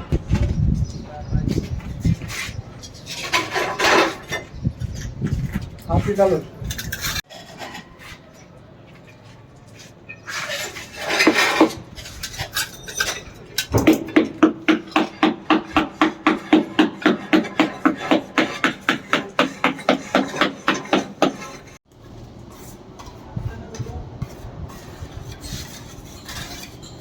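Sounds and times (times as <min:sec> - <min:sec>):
scraping: 0:00.0 - 0:21.8, 0:23.6 - 0:27.0
tiles clinking: 0:11.1 - 0:14.4.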